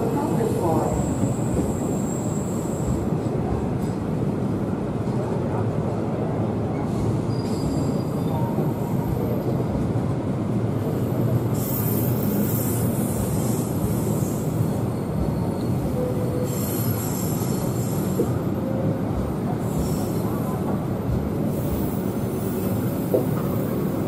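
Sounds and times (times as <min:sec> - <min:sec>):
train wheels rumbling on rail: 0:00.0 - 0:24.0
high-pitched wheel squeal: 0:01.0 - 0:03.0, 0:07.3 - 0:08.7.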